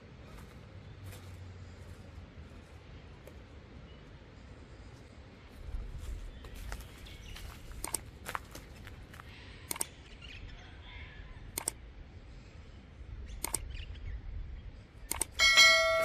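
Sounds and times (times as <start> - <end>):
low steady rumble: 0.0 - 16.0
sharp clicks: 7.8 - 8.1, 9.6 - 10.0, 11.5 - 11.8, 13.4 - 13.8, 15.0 - 15.4.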